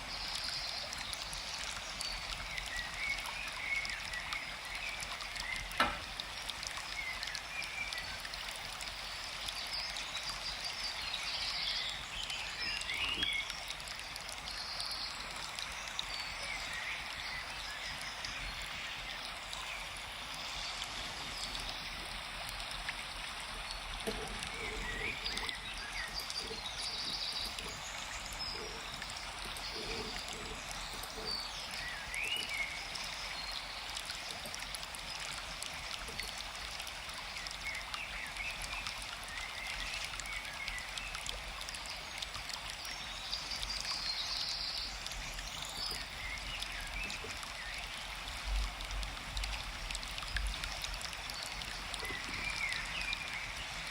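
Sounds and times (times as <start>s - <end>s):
stream flowing: 0.0s - 53.9s
birds chirping: 9.8s - 34.6s, 43.0s - 48.0s.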